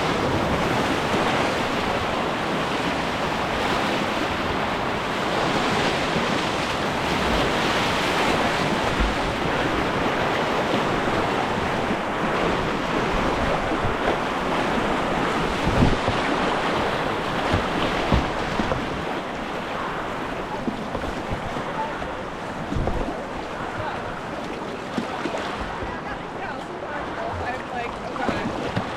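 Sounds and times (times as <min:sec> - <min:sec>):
river rapids rushing: 0:00.0 - 0:28.9
dull thumps: 0:15.6 - 0:19.2, 0:22.6 - 0:24.1.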